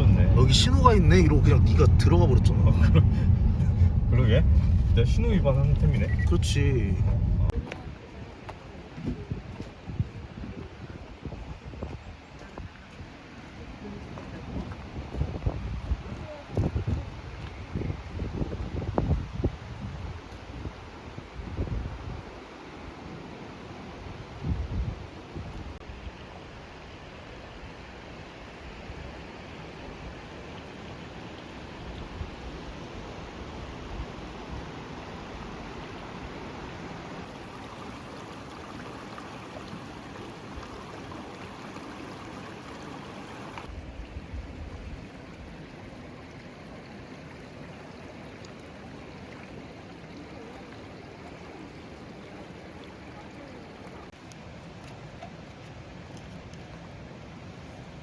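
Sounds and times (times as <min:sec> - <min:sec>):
stream flowing: 0:00.0 - 0:07.2, 0:26.1 - 0:58.0.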